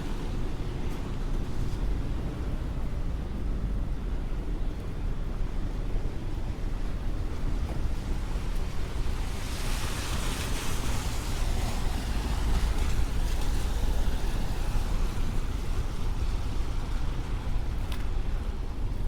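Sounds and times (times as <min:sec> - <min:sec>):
low rumble of traffic: 0:00.0 - 0:19.0
tyres hissing on wet pavement: 0:08.2 - 0:18.4.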